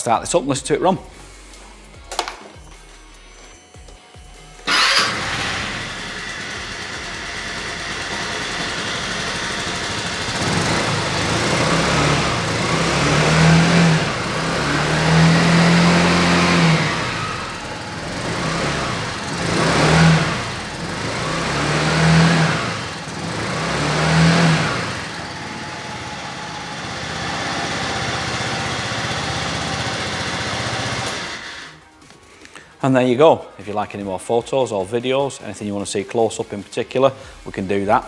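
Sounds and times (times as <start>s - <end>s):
scooter engine revving and idling: 4.6s - 31.8s.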